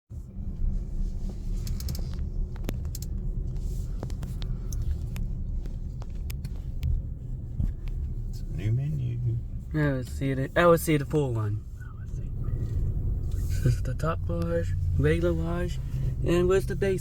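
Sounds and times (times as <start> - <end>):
car idling rumble: 0.1 - 17.0
light clicks and taps: 0.6 - 8.5.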